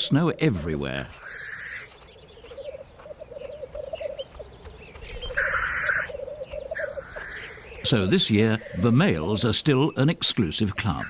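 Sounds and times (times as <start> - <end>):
grouse bubbling cooing: 5.2 - 7.4.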